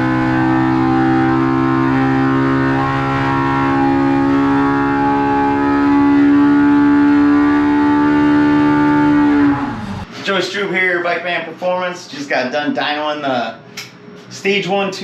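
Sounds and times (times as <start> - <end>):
engine at high revs: 0.0 - 10.1.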